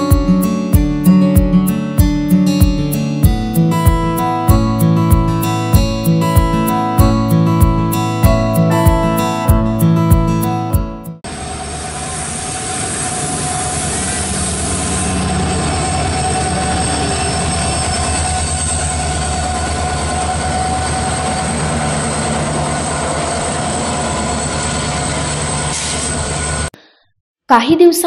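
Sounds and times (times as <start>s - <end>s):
diesel engine drone: 11.2s - 26.7s.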